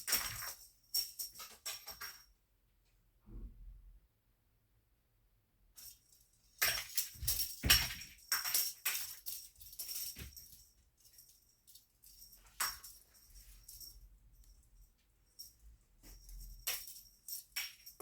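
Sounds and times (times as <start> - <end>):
cat wand toy jingling and rattling: 0.0 - 2.3, 5.8 - 18.0.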